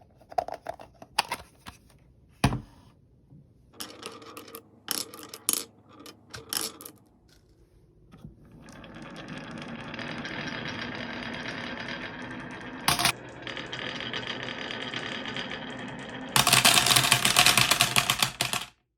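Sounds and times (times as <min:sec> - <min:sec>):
marbles clicking: 0:03.8 - 0:07.0, 0:08.6 - 0:18.7
marbles clattering: 0:03.8 - 0:07.5, 0:08.5 - 0:18.7
marbles rolling whir: 0:03.8 - 0:07.5, 0:08.4 - 0:18.8.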